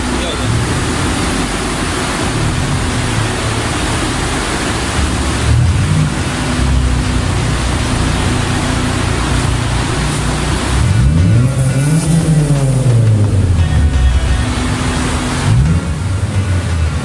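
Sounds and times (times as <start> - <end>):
car engine idling with throttle blips: 0.0 - 17.0.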